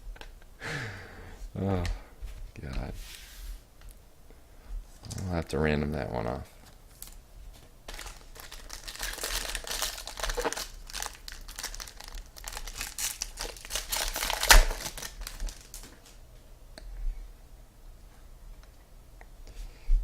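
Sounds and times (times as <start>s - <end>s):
wrapper tearing and crinkling: 7.9s - 16.2s.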